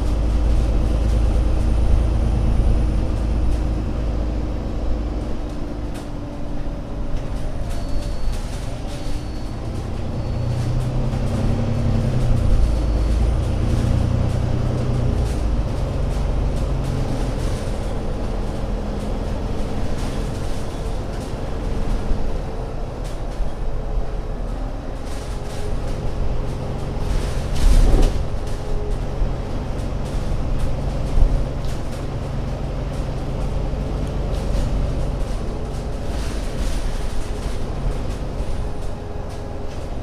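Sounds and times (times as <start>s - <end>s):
bus engine rumbling: 0.0s - 40.0s.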